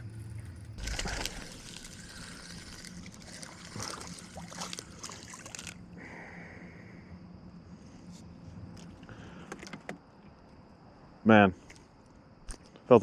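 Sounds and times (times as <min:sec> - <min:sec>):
water dripping: 0:00.8 - 0:05.8
water splashing: 0:00.8 - 0:05.9.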